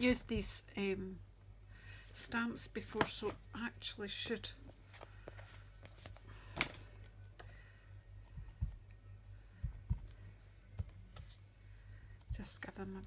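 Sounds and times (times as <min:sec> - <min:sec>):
soft knocks and taps: 0:08.3 - 0:08.8, 0:09.6 - 0:11.4.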